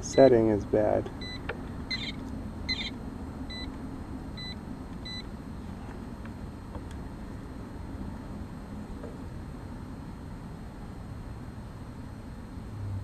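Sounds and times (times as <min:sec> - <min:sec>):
multimeter beeps: 0:00.0 - 0:05.4.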